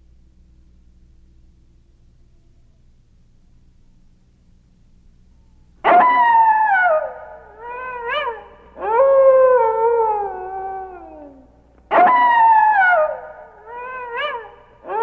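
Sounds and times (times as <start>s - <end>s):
animal howling: 5.9s - 15.0s.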